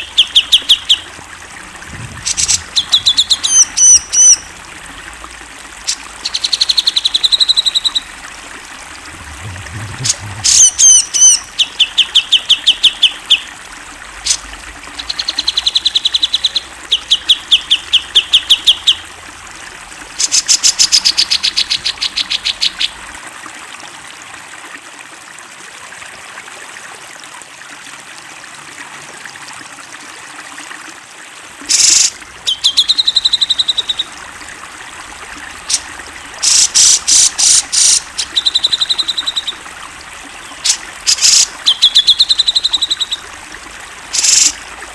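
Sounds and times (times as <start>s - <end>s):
bulbul singing: 0.0s - 4.8s, 5.8s - 8.3s, 9.0s - 13.5s, 14.3s - 19.1s, 31.7s - 44.9s
trickling water hiss: 0.0s - 44.9s.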